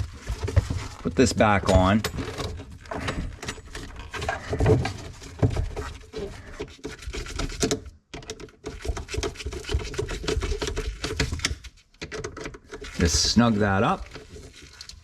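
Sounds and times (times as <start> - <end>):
hose rubbing and scraping: 0.0 - 7.8, 8.6 - 11.8, 12.6 - 15.0
small plastic clicks and knocks: 6.6 - 13.0.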